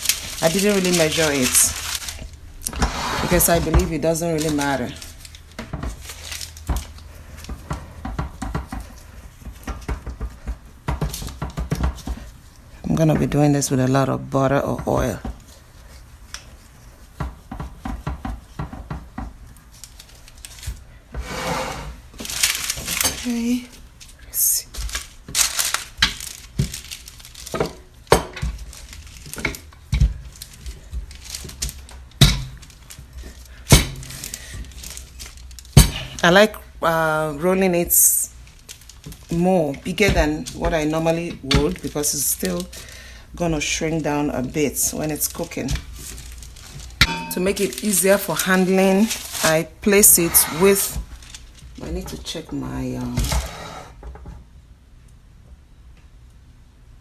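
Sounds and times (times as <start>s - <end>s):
paper rustling: 0.0s - 7.6s, 22.2s - 36.2s, 37.4s - 52.4s
hands working dough on counter: 0.0s - 54.3s.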